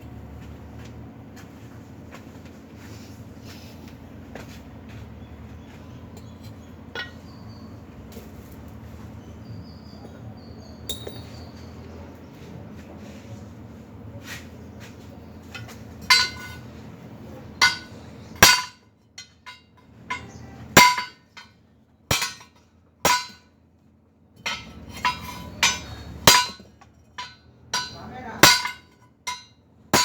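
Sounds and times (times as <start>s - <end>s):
hammer striking steel: 10.9s - 11.5s, 16.0s - 16.6s, 17.6s - 21.5s, 22.1s - 23.5s, 24.4s - 30.0s.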